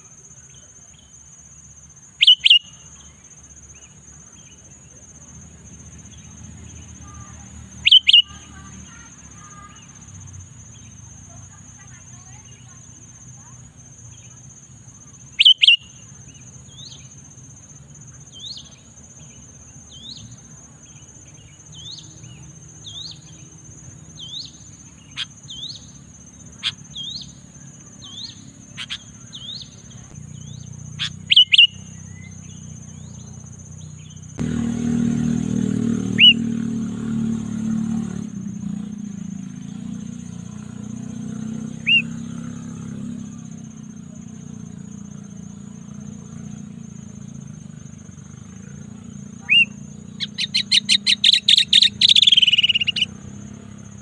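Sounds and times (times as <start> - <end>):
bulbul chirping: 2.2 - 3.0, 7.3 - 9.0, 15.4 - 17.2, 21.8 - 34.4, 36.0 - 36.6, 47.5 - 53.8.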